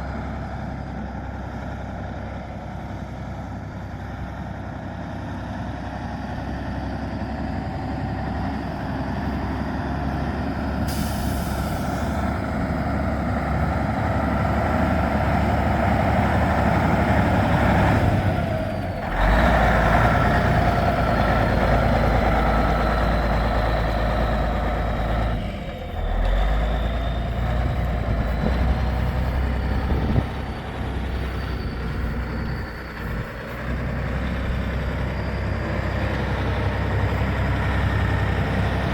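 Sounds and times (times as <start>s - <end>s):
truck engine pulling: 0.0s - 38.9s
short hiss of air: 10.9s - 12.2s.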